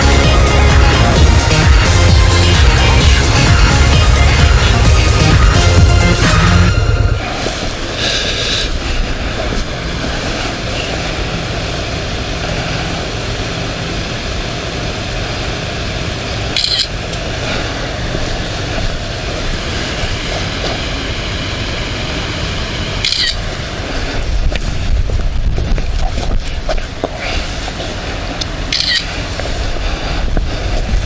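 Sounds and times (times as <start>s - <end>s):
motorcycle engine running: 0.0s - 7.7s
road and wind noise: 16.5s - 31.0s.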